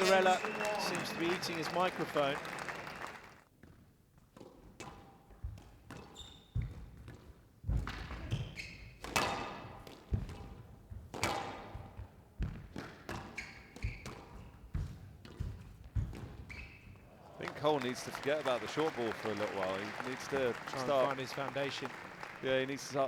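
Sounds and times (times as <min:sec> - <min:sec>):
shoes squeaking on court floor: 0:05.9 - 0:09.7, 0:12.9 - 0:17.3.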